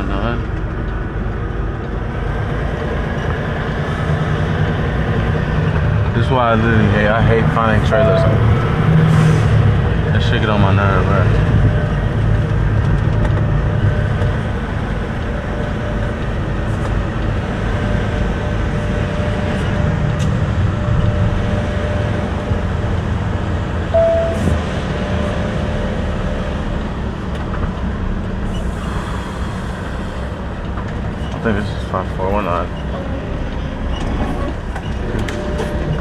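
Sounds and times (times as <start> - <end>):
truck diesel engine rumbling: 0.0 - 36.0
short high tone: 7.8 - 8.6, 24.0 - 24.6.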